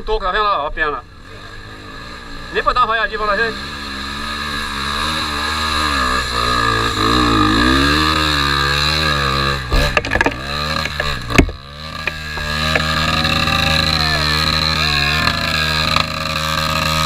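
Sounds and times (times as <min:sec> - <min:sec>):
motorcycle engine revving: 0:00.7 - 0:17.0
sharp knocks and rattles: 0:08.0 - 0:13.5.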